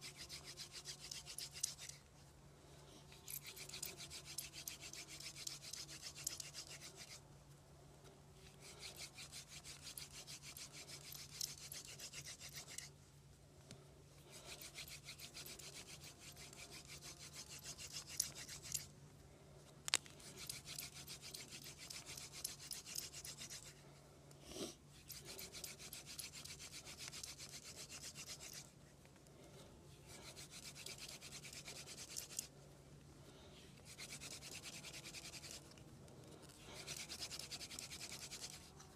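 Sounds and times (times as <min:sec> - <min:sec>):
wooden spindle rasping on board: 0:03.4 - 0:07.2, 0:08.6 - 0:12.9, 0:14.4 - 0:18.9, 0:25.1 - 0:28.7, 0:33.8 - 0:35.7, 0:36.8 - 0:38.8.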